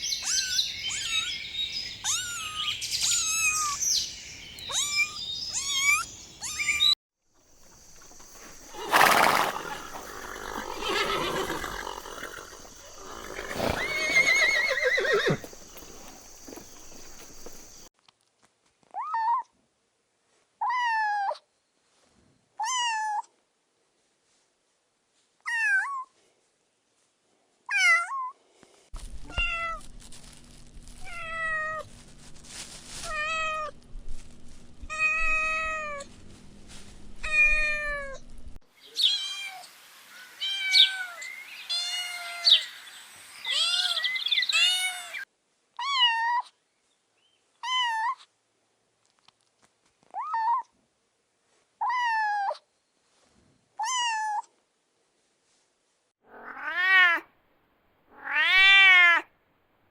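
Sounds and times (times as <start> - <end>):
young pets crying: 2.0 - 3.8, 4.7 - 7.0.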